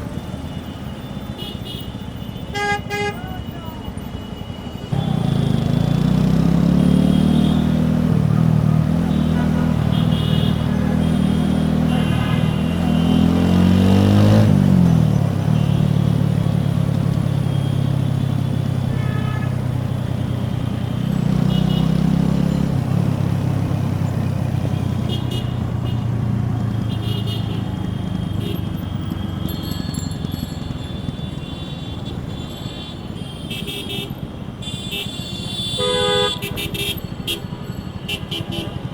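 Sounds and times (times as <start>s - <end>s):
motorcycle exhaust note: 5.0s - 18.8s.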